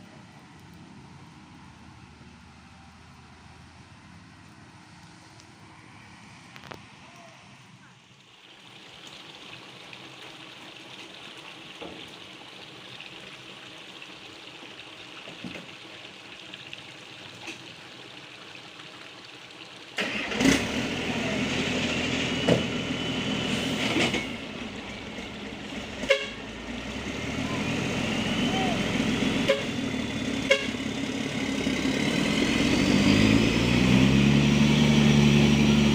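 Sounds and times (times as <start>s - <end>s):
truck engine running: 20.0s - 35.9s.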